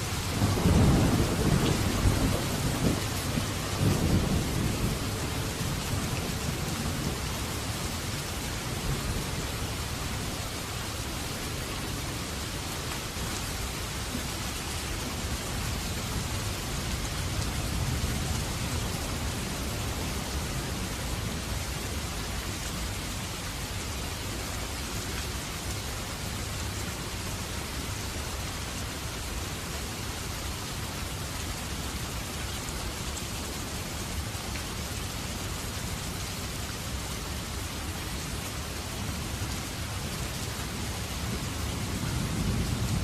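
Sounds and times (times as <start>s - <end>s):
steady rain hiss: 0.0s - 43.0s
low thunder rumble: 0.3s - 7.7s, 41.2s - 43.0s.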